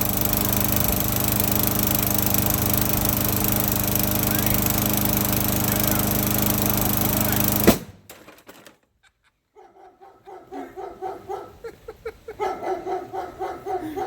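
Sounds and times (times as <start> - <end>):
dog barking: 9.6 - 14.0.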